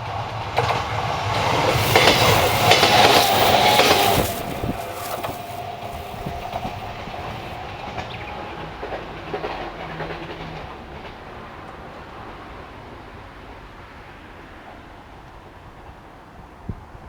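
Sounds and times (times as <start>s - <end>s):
train wheels clicking over rail joints: 0.6s - 7.6s.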